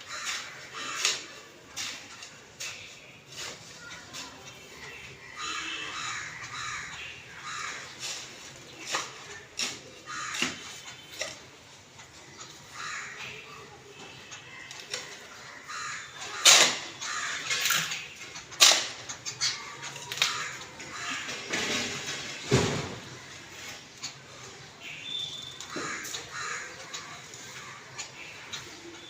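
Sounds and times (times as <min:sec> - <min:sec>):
birds cawing: 0:00.0 - 0:29.0.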